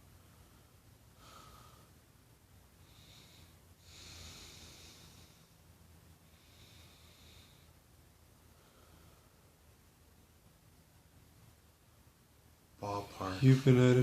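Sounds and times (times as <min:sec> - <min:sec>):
soft breathing through nose: 0:00.0 - 0:09.6
low room hum: 0:00.0 - 0:14.0.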